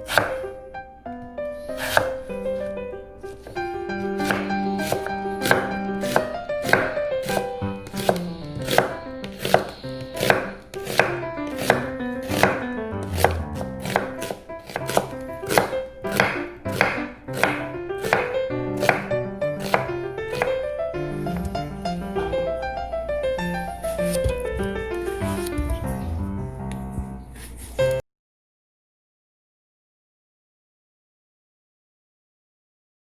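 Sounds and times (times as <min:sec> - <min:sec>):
knife chopping on cutting board: 0:00.0 - 0:00.4, 0:01.8 - 0:02.2, 0:04.2 - 0:20.6
background music: 0:00.1 - 0:27.3.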